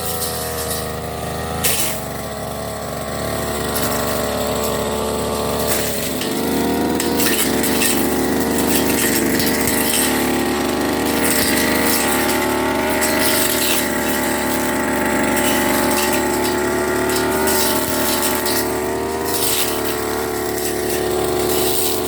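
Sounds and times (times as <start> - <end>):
brush cutter engine running: 0.0 - 22.0.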